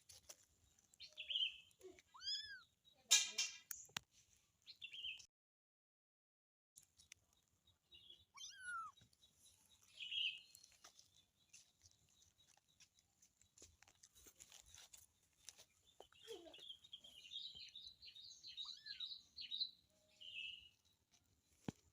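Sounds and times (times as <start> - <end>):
squeaky animal mews: 8.4 - 9.0.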